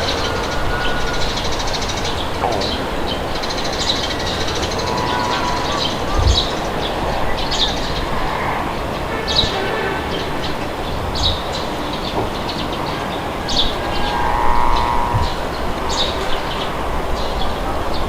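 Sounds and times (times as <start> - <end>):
small birds chirping: 0.0 - 18.0
wind blowing: 0.0 - 18.0.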